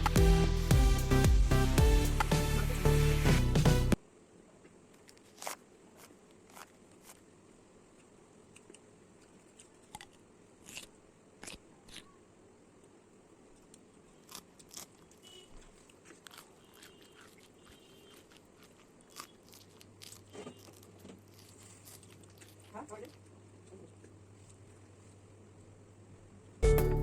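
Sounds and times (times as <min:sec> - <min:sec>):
low steady hiss: 0:00.0 - 0:16.2
chewing crunches and clicks: 0:05.0 - 0:07.2, 0:08.0 - 0:12.1, 0:13.6 - 0:24.2.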